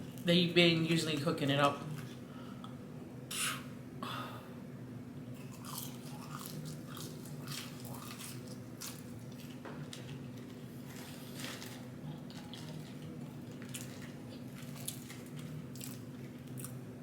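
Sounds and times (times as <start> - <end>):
steady low hum: 0.0 - 17.0
person biting and chewing food: 5.4 - 16.8.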